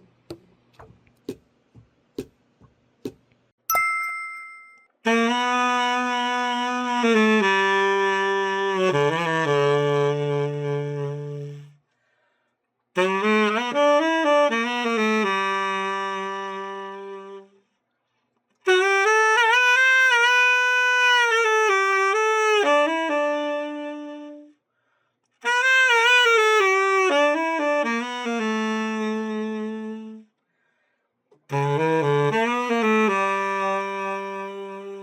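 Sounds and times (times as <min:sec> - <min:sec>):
tenor saxophone phrases: 0:05.1 - 0:11.8, 0:13.0 - 0:17.6, 0:18.7 - 0:24.6, 0:25.4 - 0:30.3, 0:31.5 - 0:35.0.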